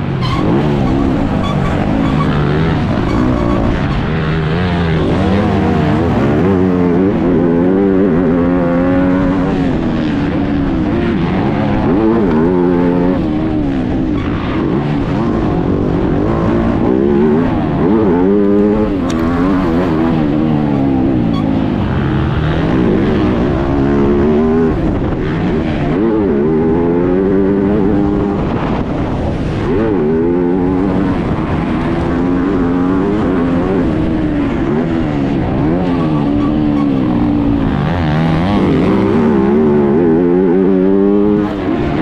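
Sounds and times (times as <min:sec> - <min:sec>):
motocross bike engine revving: 0:00.0 - 0:28.5, 0:29.4 - 0:42.0
tyres and wind noise: 0:00.0 - 0:42.0.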